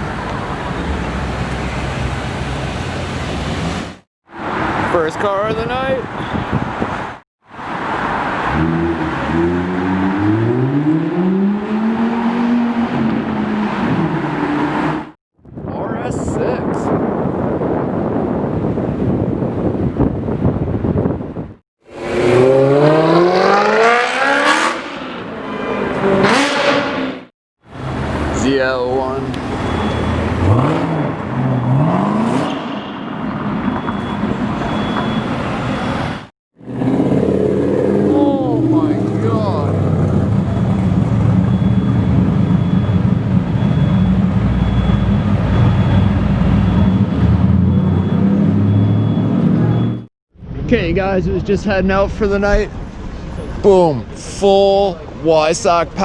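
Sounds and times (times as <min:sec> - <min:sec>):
street noise: 0:00.0 - 0:56.0
car accelerating hard: 0:07.7 - 0:15.1, 0:21.9 - 0:28.5, 0:29.3 - 0:33.6, 0:35.8 - 0:50.0.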